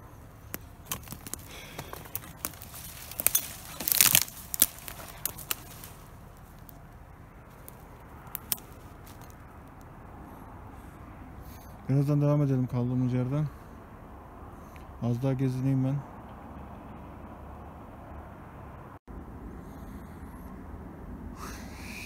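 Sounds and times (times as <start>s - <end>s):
undergrowth rustling: 0.0s - 11.6s
footsteps crunching on forest floor: 0.4s - 9.5s
twigs snapping and crackling: 0.5s - 9.9s.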